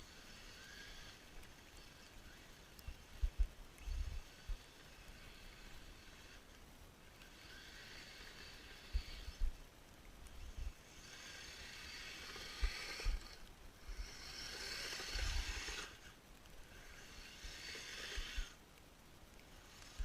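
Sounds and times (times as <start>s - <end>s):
electric motor whining: 0.0s - 6.5s, 10.4s - 18.6s.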